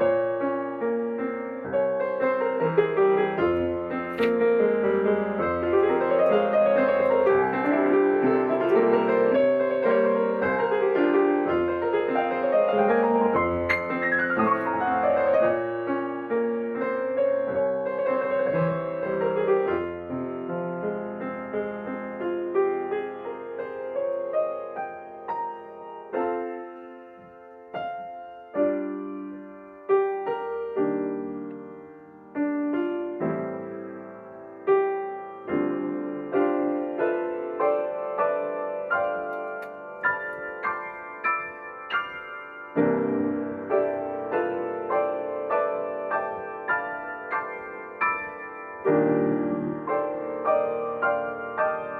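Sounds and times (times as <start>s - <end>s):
slow ambient piano music: 0.0s - 51.9s.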